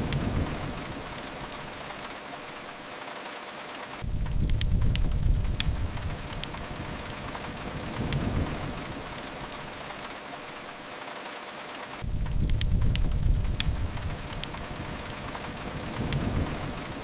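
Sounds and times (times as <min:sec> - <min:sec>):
steady rain hiss: 0:00.0 - 0:17.0
wood fire crackling: 0:00.0 - 0:17.0
low rumble: 0:04.0 - 0:09.0, 0:12.0 - 0:16.8.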